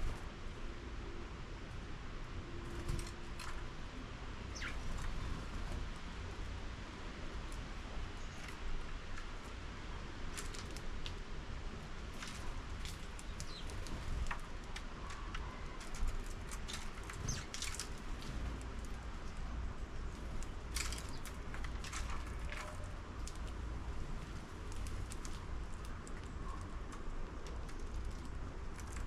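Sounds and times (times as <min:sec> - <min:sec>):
low outdoor rumble: 0:00.0 - 0:29.0
faint bird chirps: 0:04.5 - 0:05.2.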